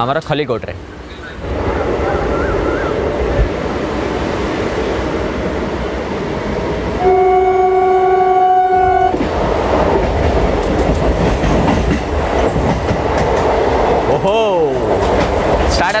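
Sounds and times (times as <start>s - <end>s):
train horn blast: 7.0s - 9.2s.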